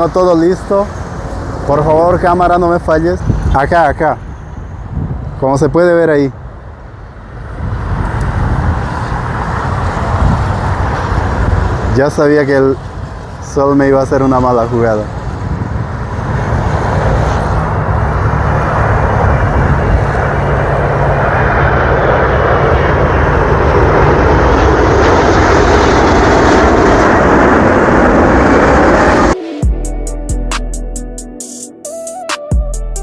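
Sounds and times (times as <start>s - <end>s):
jet engines roaring: 0.0s - 29.7s
music: 29.4s - 33.0s.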